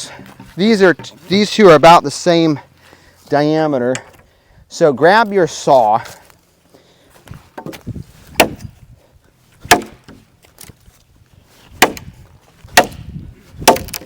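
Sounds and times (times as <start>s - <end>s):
machete chopping into log: 7.6s - 8.7s, 9.7s - 10.2s, 11.8s - 12.1s, 12.8s - 14.0s.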